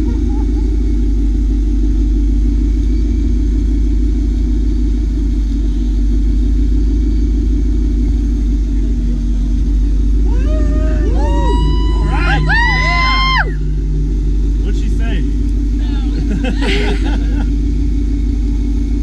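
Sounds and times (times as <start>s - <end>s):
voices: 0.0s - 1.3s, 10.2s - 13.8s, 14.6s - 17.6s
car engines rumbling: 0.0s - 19.0s.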